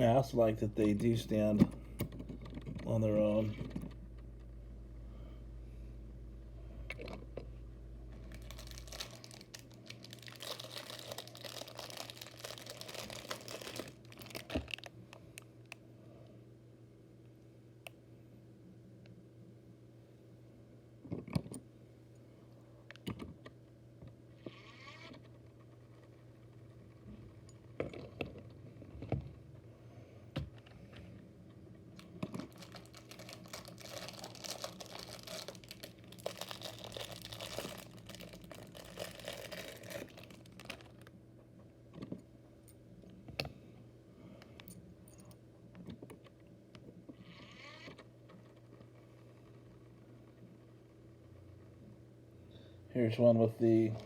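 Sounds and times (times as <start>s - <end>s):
steady low hum: 0.0s - 54.0s
plastic bags crinkling: 8.2s - 15.0s, 32.0s - 41.2s.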